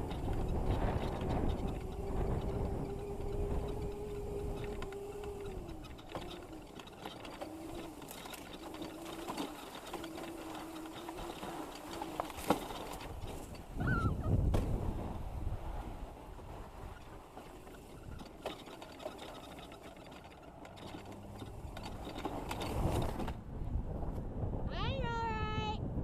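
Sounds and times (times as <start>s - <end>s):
electric dirt bike motor whining: 0.0s - 13.8s
low rumble and rattles: 0.0s - 26.0s.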